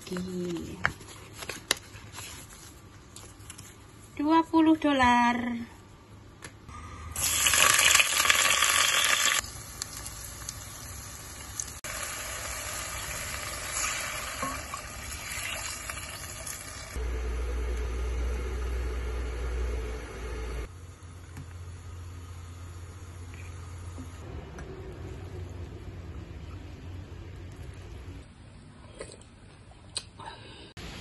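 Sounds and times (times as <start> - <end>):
aromatics sizzling in oil: 7.2 - 20.6.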